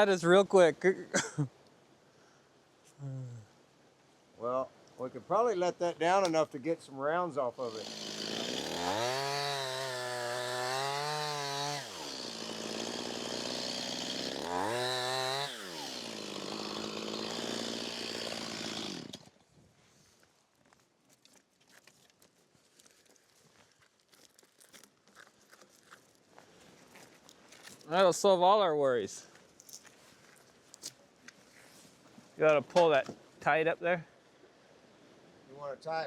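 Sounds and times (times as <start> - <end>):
chainsaw revving and idling: 7.6 - 19.3.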